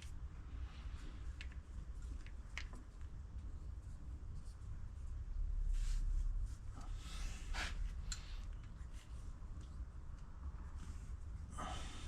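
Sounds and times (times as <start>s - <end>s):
low steady hum: 0.0s - 12.0s
light clicks of parts: 1.0s - 3.5s, 7.9s - 11.0s.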